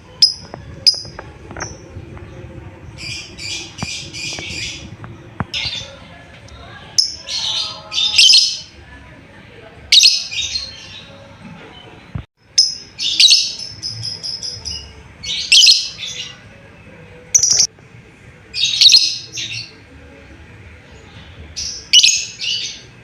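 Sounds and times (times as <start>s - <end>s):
lovebird shrill chirping: 17.4s - 17.7s.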